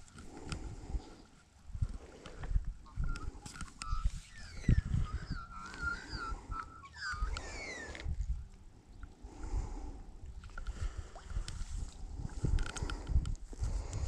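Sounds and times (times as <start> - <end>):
birds singing: 2.8 - 8.0.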